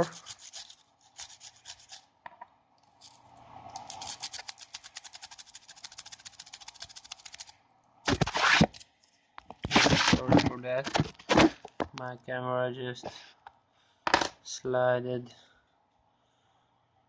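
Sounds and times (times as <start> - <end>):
rapid scratching and scrubbing: 0.0 - 2.1, 3.8 - 7.5, 8.1 - 8.8, 9.5 - 11.7.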